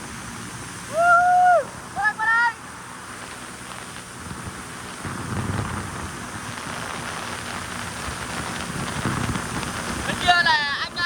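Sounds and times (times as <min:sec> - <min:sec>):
jet ski engine rumble: 0:00.0 - 0:11.0
water spray rushing: 0:00.0 - 0:11.0
wind on microphone: 0:00.0 - 0:11.0.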